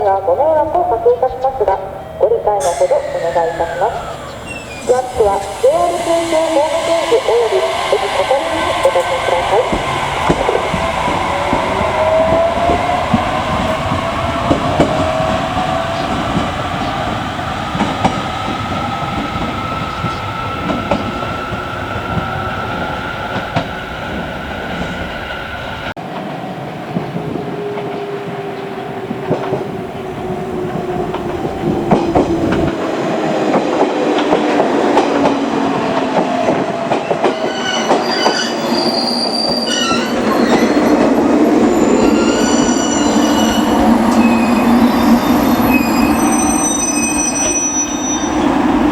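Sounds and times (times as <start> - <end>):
electric train motors whining: 1.9 - 23.7
wheel or brake squeal: 37.3 - 41.1, 41.7 - 48.4.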